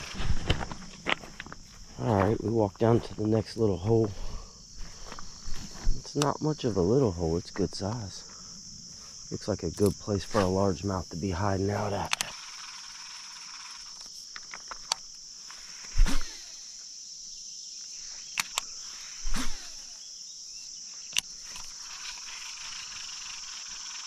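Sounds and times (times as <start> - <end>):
insect chorus: 0.0 - 24.0
sharp clicks: 5.1 - 6.6, 9.7 - 10.5, 11.8 - 15.2, 18.3 - 19.8, 21.1 - 24.0.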